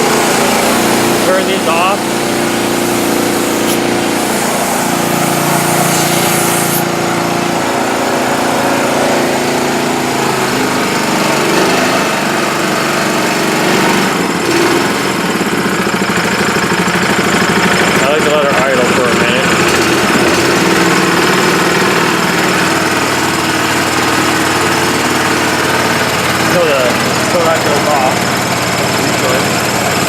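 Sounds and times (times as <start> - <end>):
compressor engine idling: 0.0 - 30.0
high hiss: 1.6 - 6.8.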